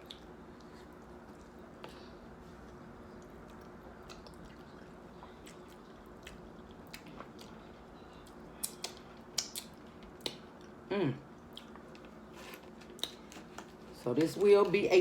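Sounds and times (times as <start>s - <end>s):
faint steady hum: 0.0s - 15.0s
mouth clicks and smacks eating: 3.2s - 7.6s, 8.3s - 10.8s.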